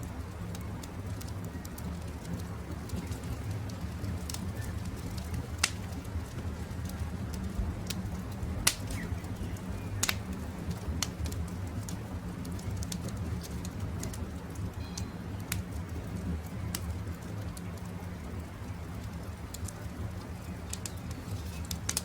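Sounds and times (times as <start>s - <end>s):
campfire crackling: 0.0s - 22.0s.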